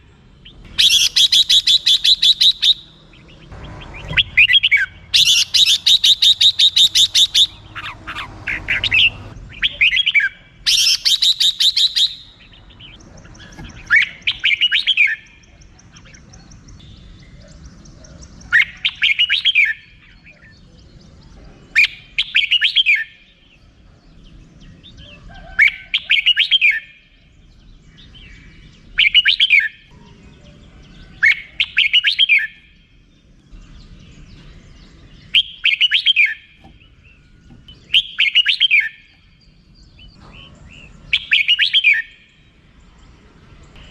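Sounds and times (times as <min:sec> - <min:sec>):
bird chattering: 0:00.4 - 0:21.0, 0:28.1 - 0:30.6, 0:31.2 - 0:32.8, 0:33.8 - 0:42.4
bird whistled phrases: 0:00.8 - 0:03.1, 0:03.9 - 0:12.4, 0:13.4 - 0:16.1, 0:18.4 - 0:20.5, 0:21.7 - 0:23.3, 0:25.1 - 0:27.0, 0:28.9 - 0:29.8, 0:31.2 - 0:32.8, 0:35.2 - 0:36.5, 0:37.8 - 0:39.2, 0:40.1 - 0:42.3.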